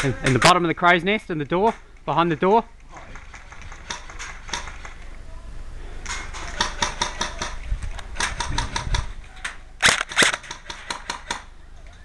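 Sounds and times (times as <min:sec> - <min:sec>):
airsoft guns firing: 0:02.9 - 0:05.1, 0:06.1 - 0:11.6.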